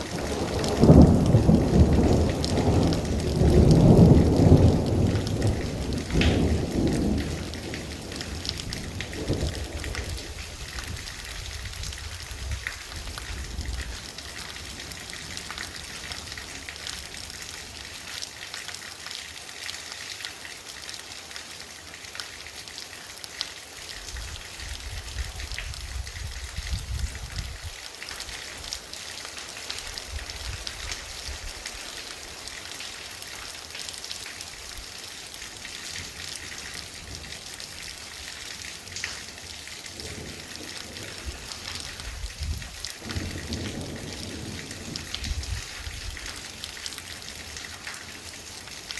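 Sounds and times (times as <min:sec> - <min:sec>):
thunder rumble: 0:00.0 - 0:13.9, 0:40.0 - 0:46.4
heavy rain falling: 0:00.0 - 0:48.9.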